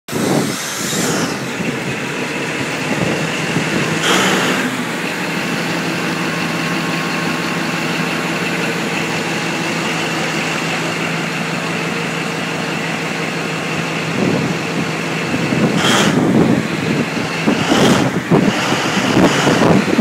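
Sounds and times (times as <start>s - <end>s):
diesel engine starting and idling: 0.1s - 20.0s.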